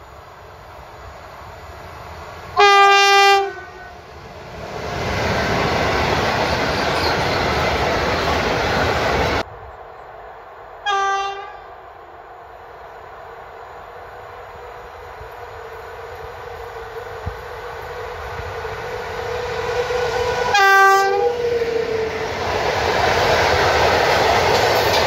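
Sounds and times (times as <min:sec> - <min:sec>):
locomotive horn: 0:02.6 - 0:04.0, 0:10.8 - 0:11.7, 0:16.2 - 0:22.1
short locomotive horn blast: 0:02.6 - 0:04.0, 0:10.8 - 0:11.7, 0:18.8 - 0:21.4.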